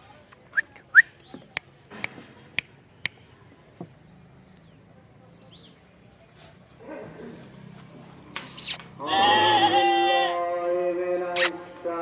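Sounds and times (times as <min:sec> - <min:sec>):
small birds chirping: 0:00.4 - 0:06.8, 0:08.4 - 0:08.8
short sharp clicks: 0:11.4 - 0:11.6.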